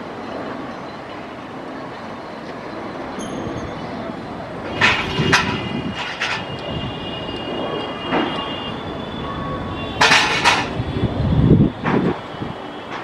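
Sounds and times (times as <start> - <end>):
heavy mechanical rolling rumble: 2.7 - 6.9, 9.6 - 13.0
faint high squeal: 5.2 - 10.0
sharp metallic clacks: 10.0 - 10.8.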